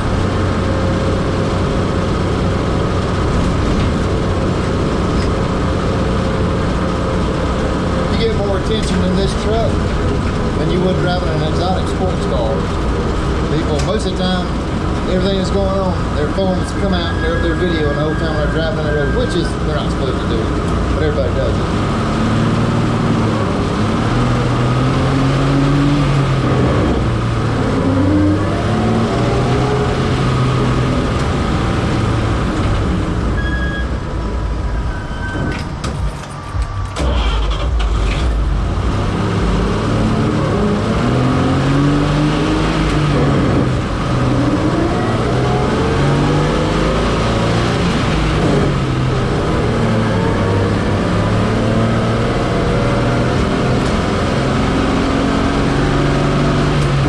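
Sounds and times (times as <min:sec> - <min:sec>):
truck engine revving through gears: 0:00.0 - 0:57.0.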